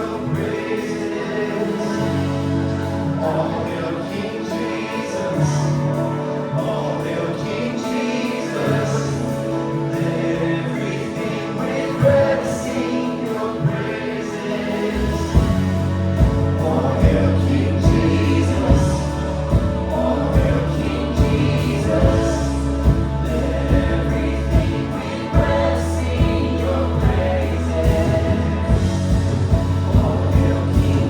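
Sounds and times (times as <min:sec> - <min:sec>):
voices singing: 0:00.0 - 0:31.0
worship band playing: 0:00.0 - 0:31.0
low drum thumps: 0:15.4 - 0:31.0.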